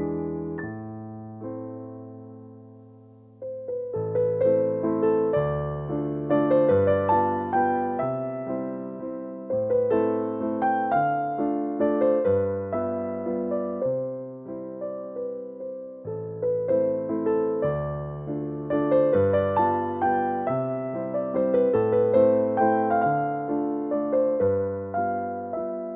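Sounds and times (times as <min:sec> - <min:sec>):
gentle piano music: 0:00.0 - 0:25.9.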